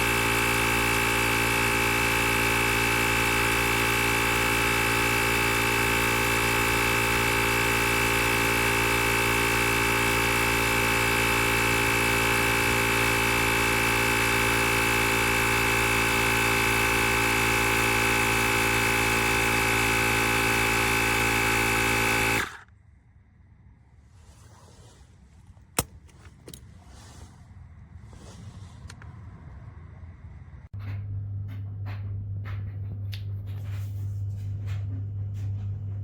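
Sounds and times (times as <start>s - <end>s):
motor buzzing hum: 0.0s - 22.7s.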